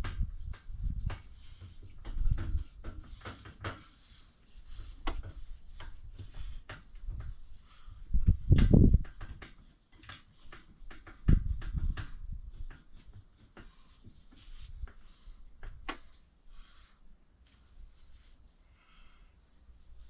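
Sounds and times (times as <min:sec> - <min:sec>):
small handling clicks and knocks: 0:00.0 - 0:04.0, 0:08.2 - 0:15.0.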